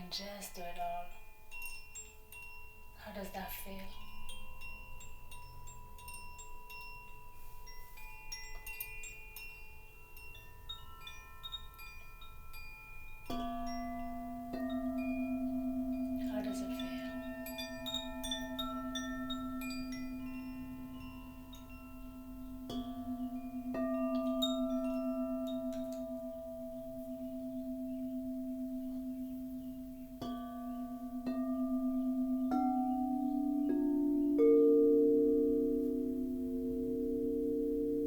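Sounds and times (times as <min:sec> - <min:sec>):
bowls or chimes struck: 0:00.0 - 0:38.0
singing bowls ringing drone: 0:00.0 - 0:38.0.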